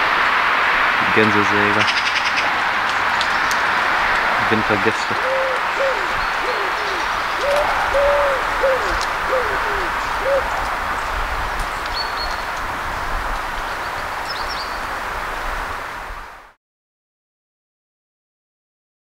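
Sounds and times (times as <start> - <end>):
bird calling low notes: 4.4 - 11.2.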